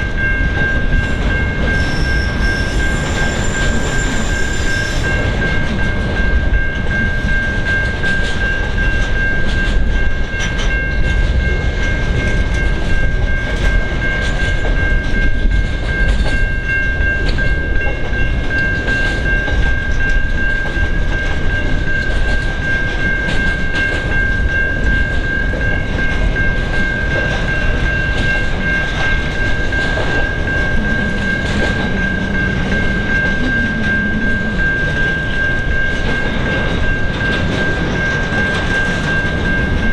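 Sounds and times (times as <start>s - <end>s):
train wheels clicking over rail joints: 0.0s - 39.9s
high-pitched wheel squeal: 1.7s - 5.2s
low drone: 28.3s - 37.0s.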